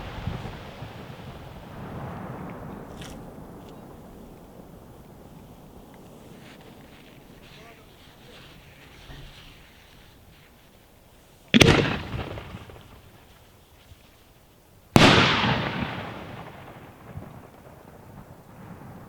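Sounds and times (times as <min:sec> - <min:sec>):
echoing rumble: 0:00.0 - 0:06.0
firework shells bursting: 0:11.4 - 0:13.6.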